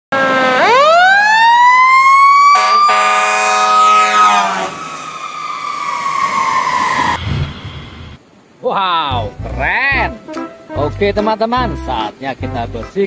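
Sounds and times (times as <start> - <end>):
siren wailing: 0.1 - 8.2
horn-like tone: 2.6 - 4.8.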